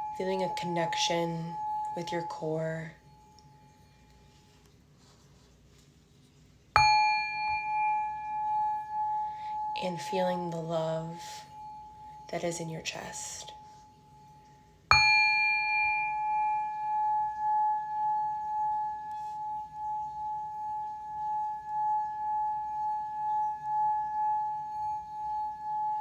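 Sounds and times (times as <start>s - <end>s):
singing bowl ringing: 0.0s - 4.5s, 6.8s - 26.0s.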